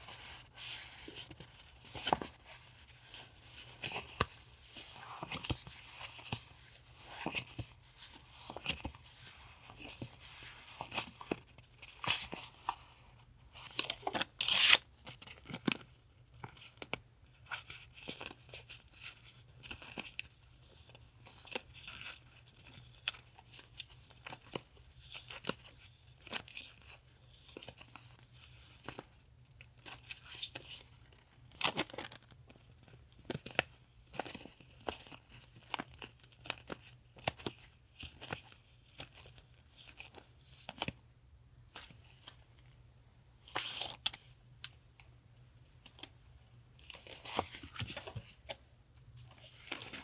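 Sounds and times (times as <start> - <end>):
packaging rustling and crinkling: 46.8 - 50.0.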